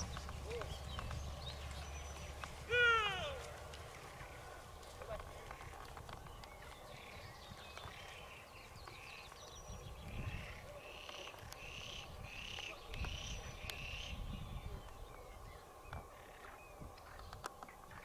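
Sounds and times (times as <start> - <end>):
low rumbling background noise: 0.0 - 9.2
bird calling: 0.0 - 18.0.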